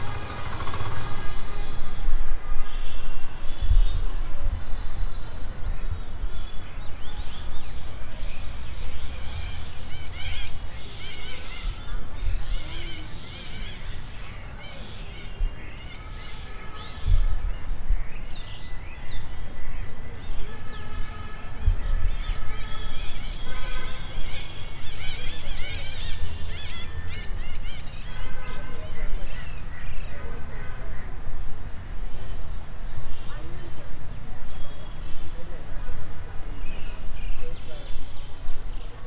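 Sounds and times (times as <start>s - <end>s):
birds chirping and calling: 5.2s - 20.9s, 21.9s - 31.4s.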